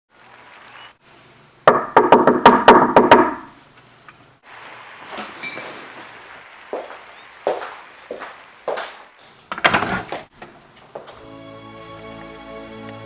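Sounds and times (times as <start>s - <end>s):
knocking on a wooden door: 1.7s - 3.5s.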